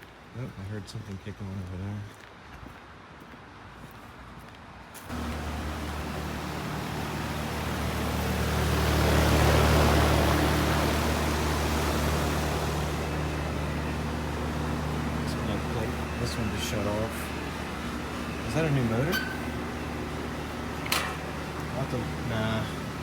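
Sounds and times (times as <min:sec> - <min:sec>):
compressor hum: 0:05.1 - 0:23.0
fan rushing air: 0:05.1 - 0:23.0.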